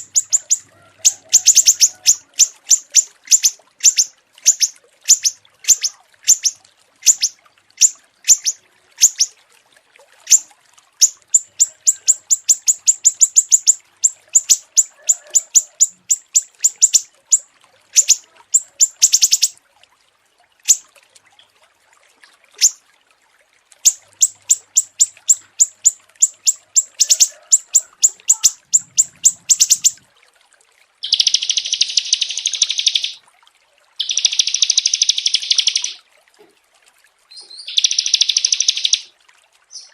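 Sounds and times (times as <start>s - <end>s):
harsh buzzing bird trills: 0.0s - 0.6s, 1.3s - 9.3s, 24.5s - 30.0s, 31.0s - 33.2s
songbirds chirping: 0.0s - 9.3s, 11.0s - 19.6s, 23.9s - 30.0s, 31.0s - 33.2s, 34.0s - 36.0s, 37.3s - 39.0s.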